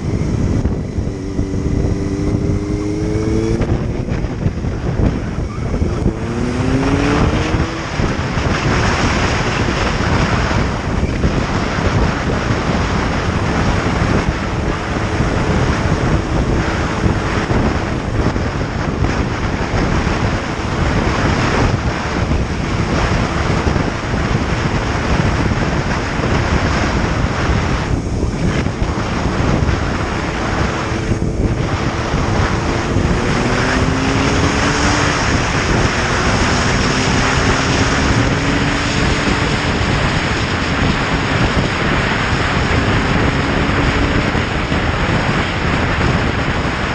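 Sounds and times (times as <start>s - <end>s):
motorcycle engine hum: 0.0s - 46.9s
wind rushing over microphone: 0.0s - 46.9s.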